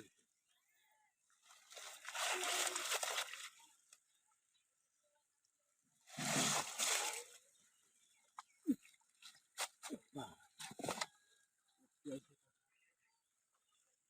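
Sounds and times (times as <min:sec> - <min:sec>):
river water sloshing and splashing: 0:01.7 - 0:03.6, 0:06.1 - 0:07.4.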